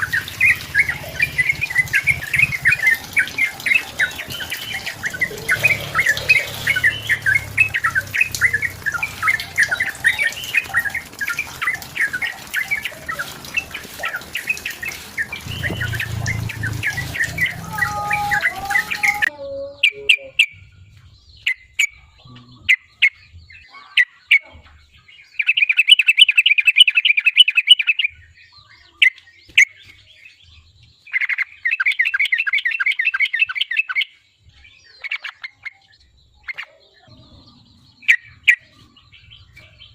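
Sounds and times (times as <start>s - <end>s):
bird chattering bursts: 0.0s - 20.6s
background noise: 0.0s - 39.9s
bird singing bubbly phrases: 0.0s - 39.9s.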